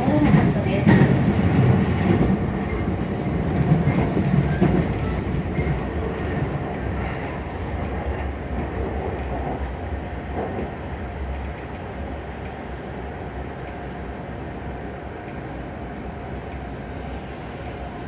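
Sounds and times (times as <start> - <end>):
train wheels rumbling on rails: 0.0 - 18.0
light rail clicks: 3.2 - 9.6, 10.3 - 12.8, 13.4 - 14.0, 15.0 - 15.6, 16.3 - 18.0.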